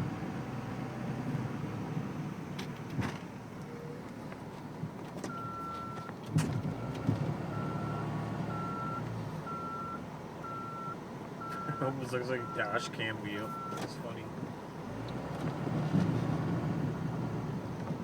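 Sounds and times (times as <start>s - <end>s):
diesel truck engine running: 0.0s - 18.0s
reversing beeper: 6.8s - 11.8s.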